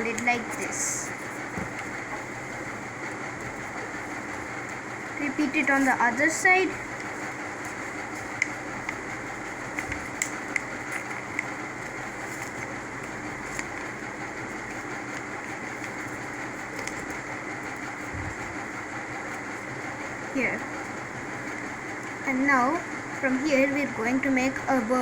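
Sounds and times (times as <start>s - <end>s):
steady hum: 0.0s - 25.0s
paper crinkling: 9.7s - 18.2s.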